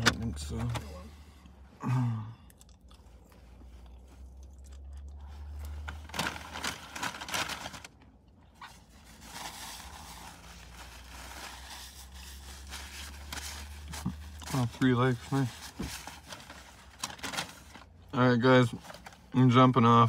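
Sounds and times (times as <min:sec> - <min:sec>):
low steady hum: 0:00.0 - 0:20.0
chewing and crunchy bites: 0:02.4 - 0:05.9.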